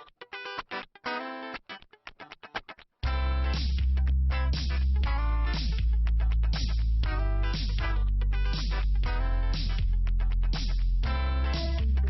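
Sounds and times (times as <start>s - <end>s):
background music with bass: 3.0s - 12.0s.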